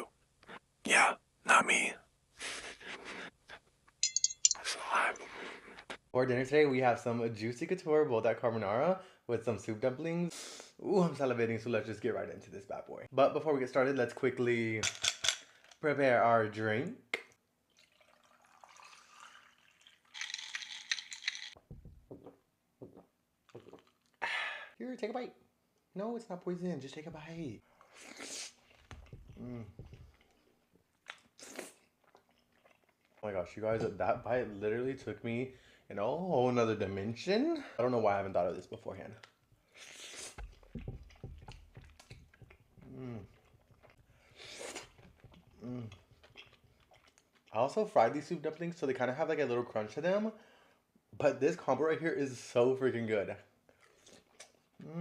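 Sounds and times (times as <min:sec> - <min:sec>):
drink pouring into cup: 0:17.7 - 0:21.5
chewing crunchy food: 0:28.5 - 0:33.2, 0:40.4 - 0:47.6, 0:53.7 - 0:54.8.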